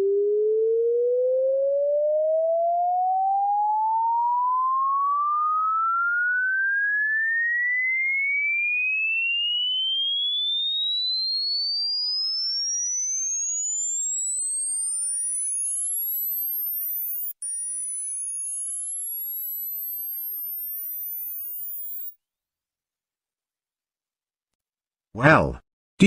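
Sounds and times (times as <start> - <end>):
rising sine tone sweep: 0.0 - 22.2.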